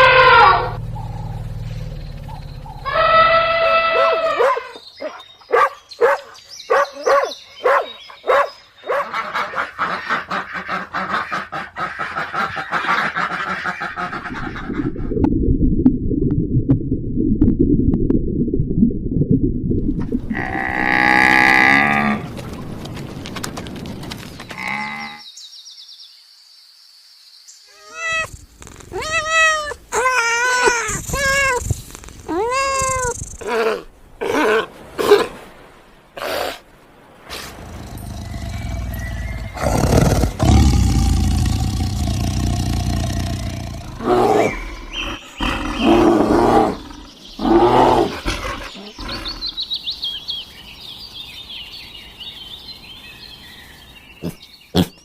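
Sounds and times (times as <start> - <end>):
cow mooing: 0.0 - 1.6
animal calls: 0.0 - 14.2, 27.7 - 35.4, 37.3 - 49.6
cat meowing: 27.7 - 33.6.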